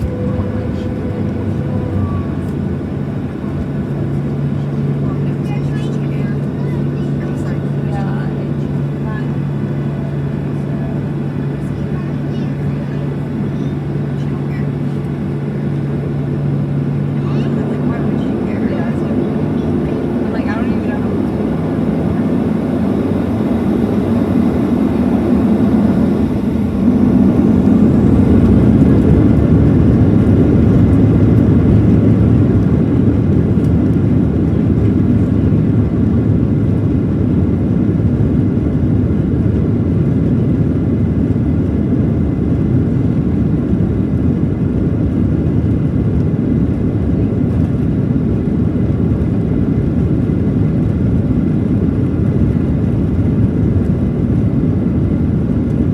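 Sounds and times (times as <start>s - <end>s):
jet engine cabin rumble: 0.0s - 55.9s.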